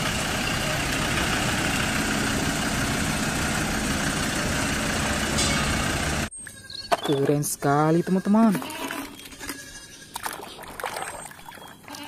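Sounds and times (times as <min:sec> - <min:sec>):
road train engine humming: 0:00.0 - 0:06.3.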